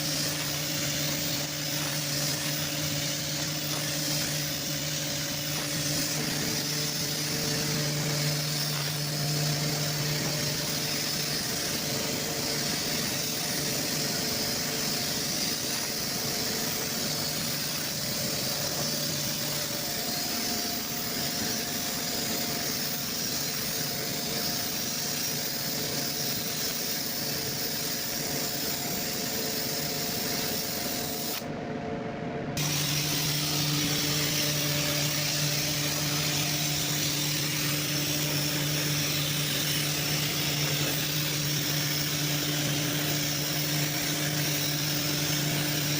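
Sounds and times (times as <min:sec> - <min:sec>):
steady hissing noise: 0:00.0 - 0:31.4, 0:32.6 - 0:45.9
low machine hum: 0:31.4 - 0:45.9.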